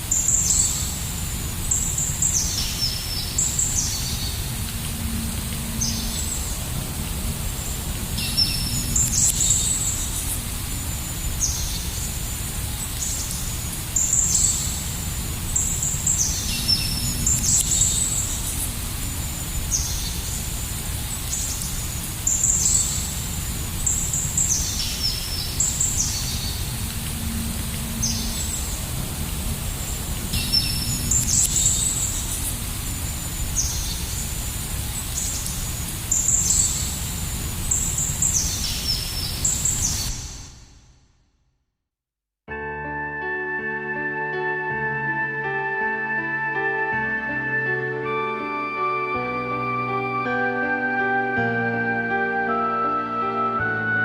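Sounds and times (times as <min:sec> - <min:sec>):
low background noise: 0:00.0 - 0:40.9.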